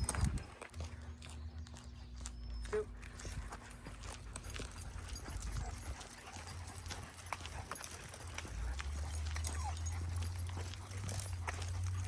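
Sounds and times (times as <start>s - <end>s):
light leash clicks: 0.0s - 12.0s.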